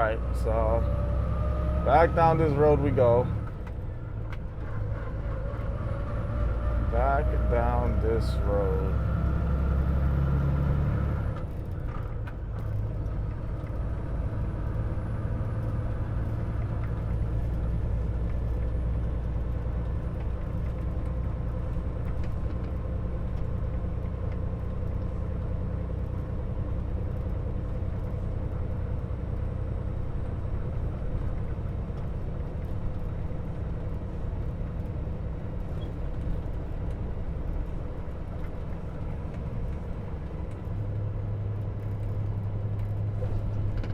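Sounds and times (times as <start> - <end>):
truck diesel engine running: 0.0 - 43.9.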